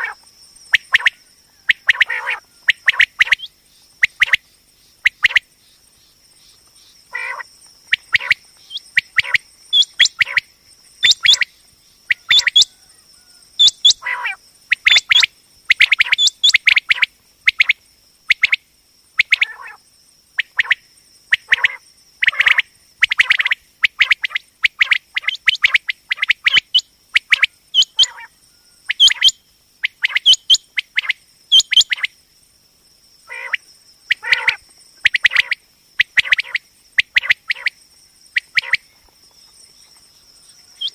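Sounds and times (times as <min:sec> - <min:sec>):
quail calling: 0:00.0 - 0:04.4, 0:07.1 - 0:11.5, 0:12.1 - 0:17.7, 0:19.2 - 0:19.8, 0:20.4 - 0:32.1, 0:33.3 - 0:37.8, 0:38.4 - 0:38.8, 0:40.4 - 0:40.9.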